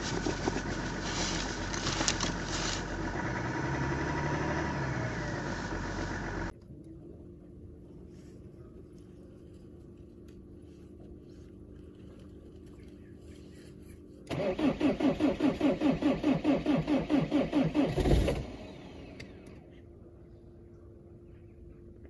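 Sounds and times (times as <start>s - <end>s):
diesel engine cranking: 0.0s - 6.5s, 14.3s - 19.6s.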